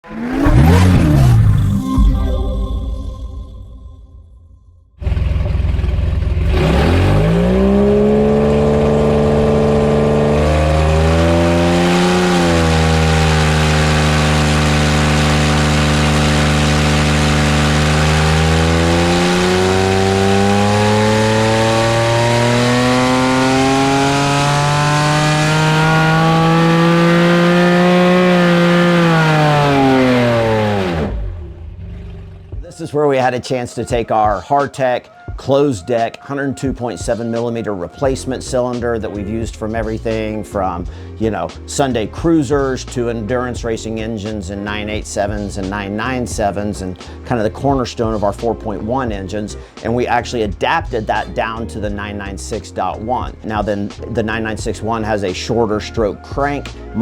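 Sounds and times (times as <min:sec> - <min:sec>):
car engine revving under load: 0:00.0 - 0:02.0, 0:05.0 - 0:32.6, 0:50.8 - 0:57.0.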